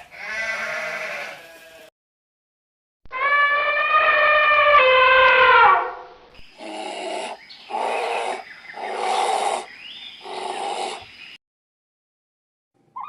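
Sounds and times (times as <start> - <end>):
animal growling calls: 6.5 - 11.1
animal pitched call: 6.6 - 11.0.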